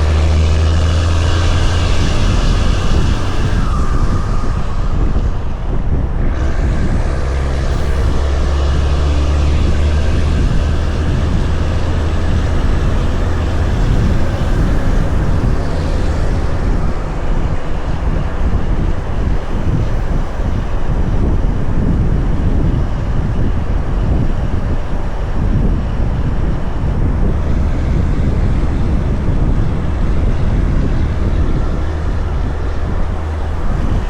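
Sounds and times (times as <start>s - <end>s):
road and wind noise: 0.0s - 34.0s
truck diesel engine under load: 0.0s - 34.0s.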